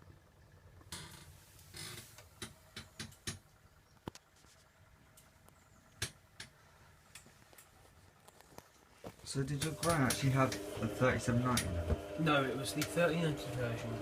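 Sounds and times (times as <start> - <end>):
faint motor hum: 0.0 - 14.0
washing machine drum turning: 9.5 - 14.0.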